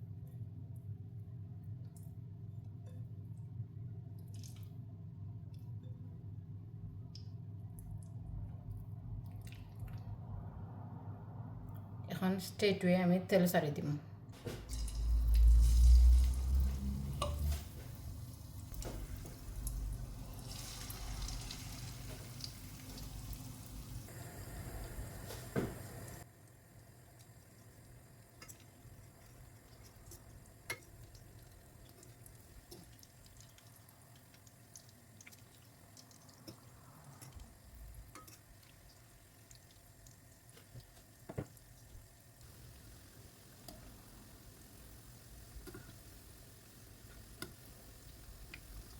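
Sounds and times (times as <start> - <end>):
oil pouring into a pan: 14.7 - 17.5, 18.2 - 24.0.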